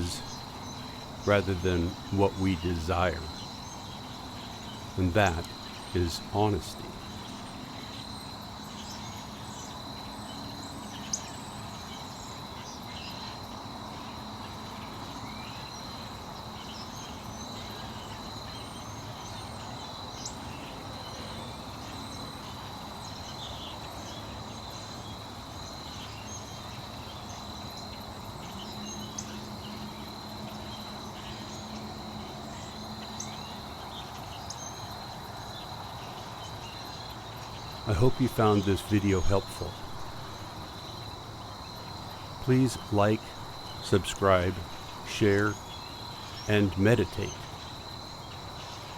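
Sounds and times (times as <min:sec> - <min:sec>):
faint low hum: 0:00.0 - 0:08.2, 0:36.9 - 0:48.9
insects trilling: 0:00.0 - 0:48.9.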